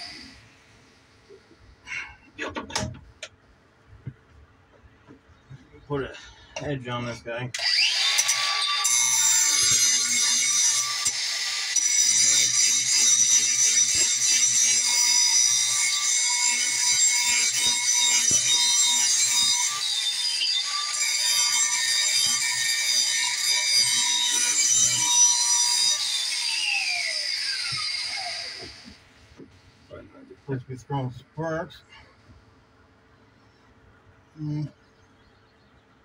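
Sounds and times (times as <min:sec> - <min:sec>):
angle grinder grinding steel: 0:07.6 - 0:29.0.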